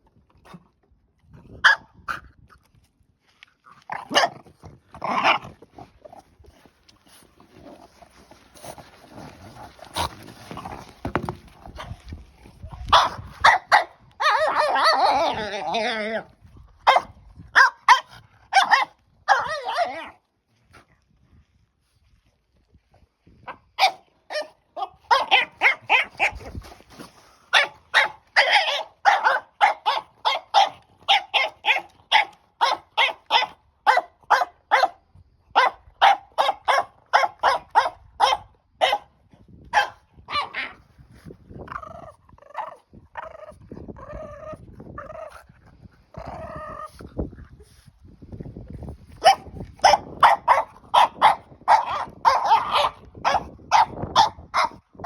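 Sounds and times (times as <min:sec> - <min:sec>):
puppy barking and yipping: 0:12.9 - 0:15.3, 0:16.9 - 0:20.1, 0:23.8 - 0:26.4, 0:27.5 - 0:35.0, 0:35.6 - 0:39.1, 0:39.7 - 0:40.8, 0:49.2 - 0:54.8.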